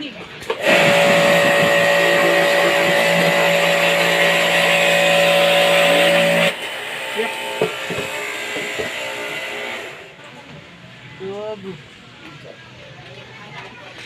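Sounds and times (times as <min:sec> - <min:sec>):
electric power tool motor running: 0:00.4 - 0:10.1.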